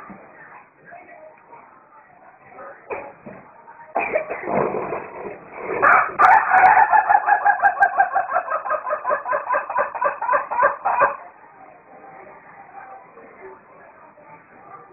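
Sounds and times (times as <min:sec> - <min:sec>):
rooster crowing: 0:05.8 - 0:08.7.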